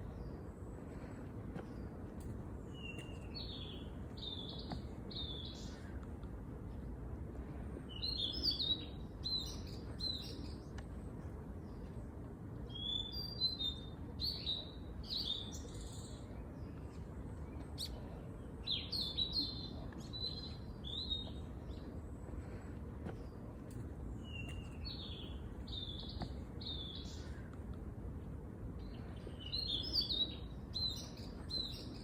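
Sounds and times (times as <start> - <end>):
low background rumble: 0.0 - 32.0
songbirds chirping: 0.0 - 32.0.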